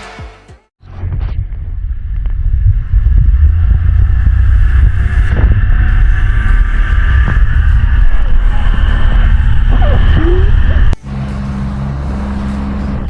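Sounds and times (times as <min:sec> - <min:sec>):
wind buffeting microphone: 0:01.0 - 0:11.0
motorboat motor droning: 0:01.8 - 0:13.0.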